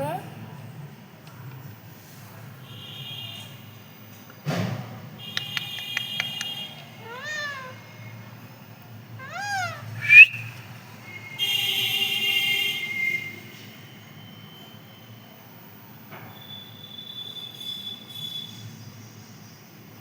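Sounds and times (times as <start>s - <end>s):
quick clicks: 5.3s - 6.7s
parrot calling: 5.4s - 8.0s, 9.2s - 10.6s
parrot squawk: 5.8s - 7.8s, 9.2s - 10.5s.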